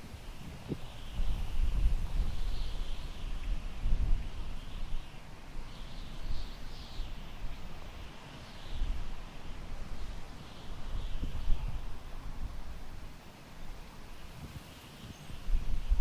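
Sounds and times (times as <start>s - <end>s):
wind buffeting microphone: 0.0s - 5.0s, 14.2s - 16.0s
wind through tall grass: 0.0s - 16.0s.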